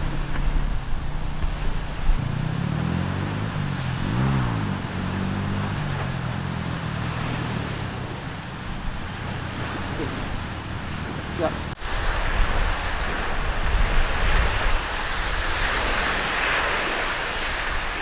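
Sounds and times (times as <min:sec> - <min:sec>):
motor engine running: 0:00.0 - 0:11.8.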